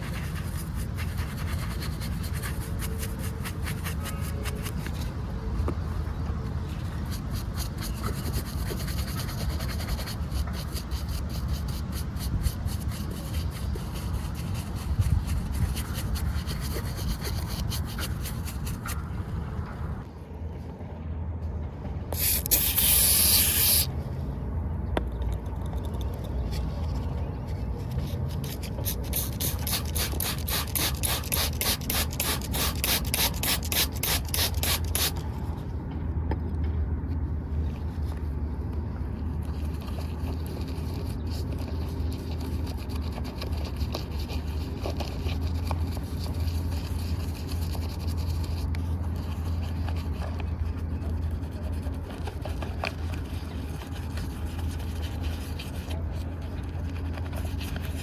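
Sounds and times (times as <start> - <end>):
brush scrubbing strokes: 0.0 - 5.0, 6.6 - 19.0, 22.2 - 23.9, 27.5 - 35.1, 39.5 - 58.0.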